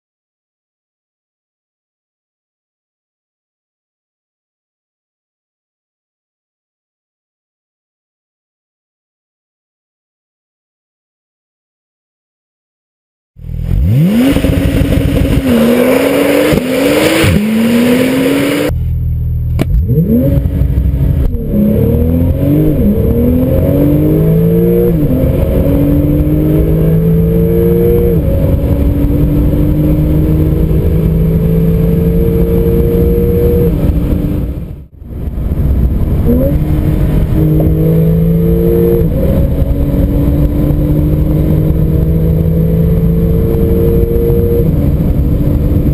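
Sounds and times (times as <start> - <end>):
car engine accelerating hard: 13.4 - 45.9.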